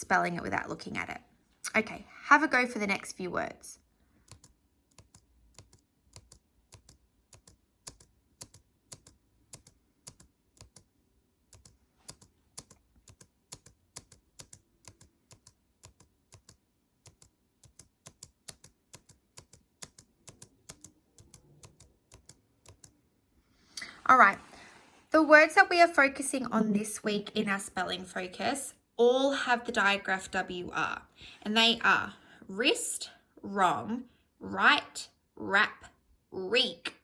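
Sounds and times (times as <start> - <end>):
typing on computer keyboard: 4.2 - 10.9, 11.5 - 22.9.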